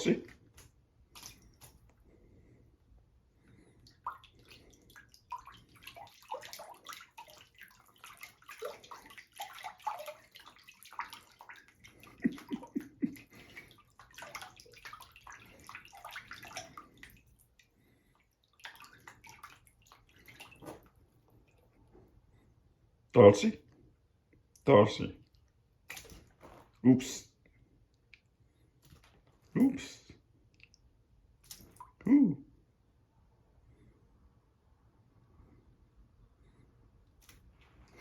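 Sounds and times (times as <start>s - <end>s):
water splashing in a sink: 0.0s - 1.9s, 3.4s - 21.8s, 25.3s - 26.7s, 30.6s - 32.0s.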